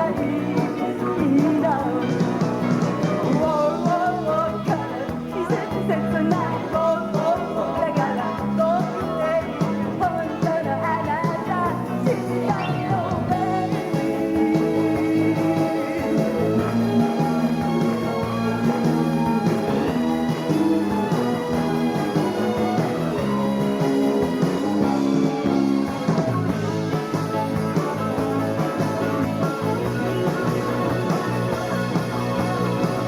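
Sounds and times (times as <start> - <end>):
woman singing: 0.0 - 16.7
live rock band playing: 0.0 - 33.0.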